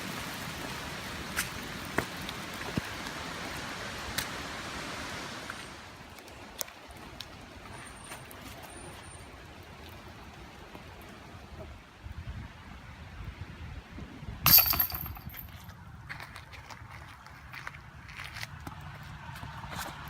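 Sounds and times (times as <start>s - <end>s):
raindrops tapping nearby: 0.0s - 4.5s
rain hissing: 0.0s - 6.2s.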